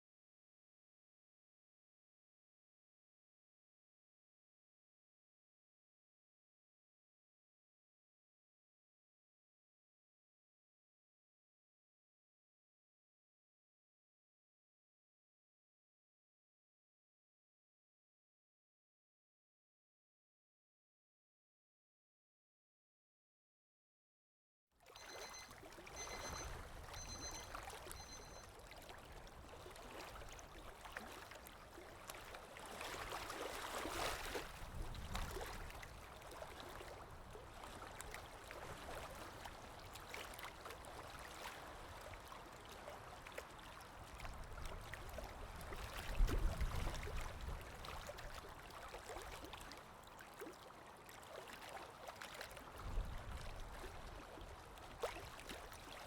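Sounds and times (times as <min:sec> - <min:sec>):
digital watch alarm beeping: 0:25.0 - 0:28.5
water lapping: 0:25.0 - 0:56.0.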